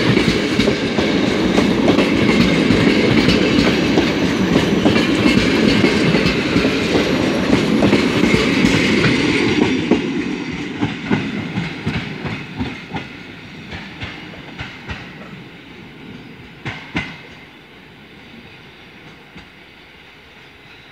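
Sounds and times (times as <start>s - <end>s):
train wheels clacking over rail joints: 0.0s - 15.5s, 16.6s - 17.5s
rumble of passing train coaches: 0.0s - 20.9s.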